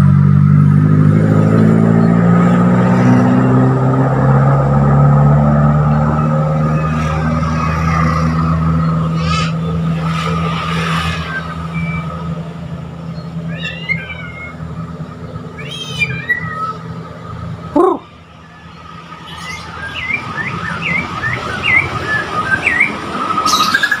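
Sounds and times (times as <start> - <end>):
vehicle engine running: 0.0 - 23.5
songbird chirping and whistling: 13.1 - 14.6, 15.6 - 16.9, 18.4 - 24.0.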